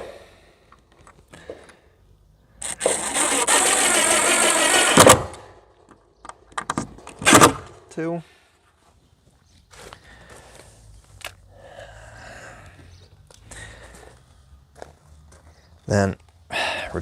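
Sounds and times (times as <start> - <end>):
power drill driving a screw: 2.6 - 5.4, 7.2 - 7.7.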